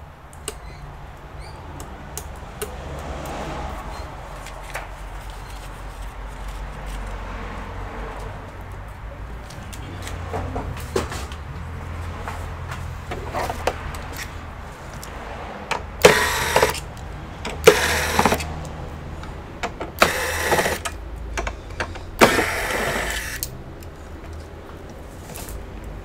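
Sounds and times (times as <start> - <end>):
small electric motor running: 16.0 - 16.8, 17.6 - 18.5, 20.0 - 20.9, 22.2 - 23.4.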